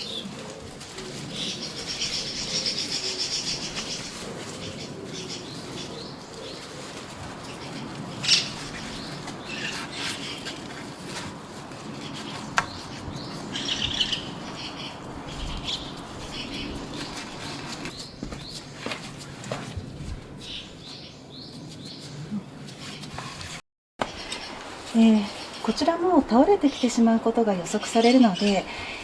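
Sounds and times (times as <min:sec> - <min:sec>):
small birds chirping: 0:00.0 - 0:10.8, 0:11.8 - 0:19.0.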